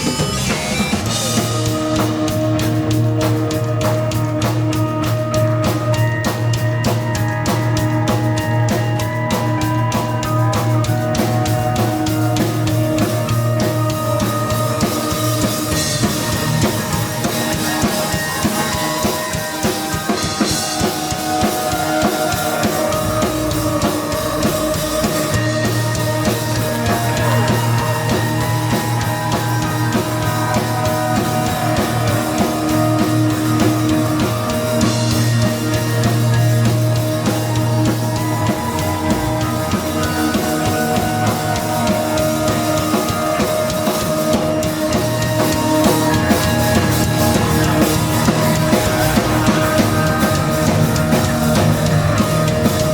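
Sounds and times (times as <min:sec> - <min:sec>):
heavy rock band playing: 0:00.0 - 0:52.9.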